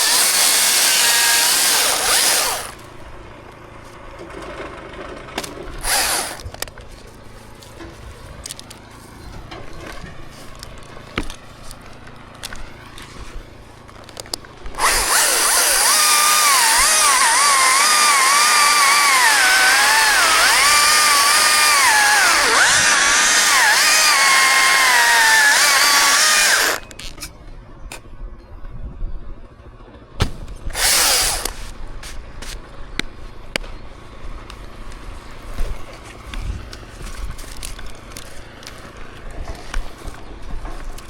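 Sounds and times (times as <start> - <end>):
chainsaw cutting wood: 0.0 - 2.9, 5.8 - 6.5, 14.8 - 26.9, 30.7 - 31.7.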